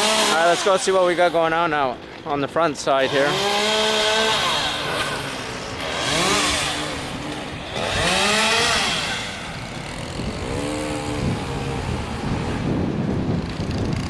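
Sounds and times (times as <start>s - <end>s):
chainsaw engine revving: 0.0s - 14.0s.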